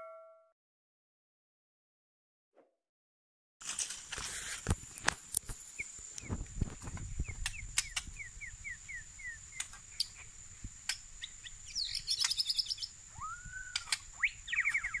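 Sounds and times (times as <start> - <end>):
birds calling: 5.5 - 15.0
sharp clicks: 6.9 - 8.1, 13.7 - 14.1.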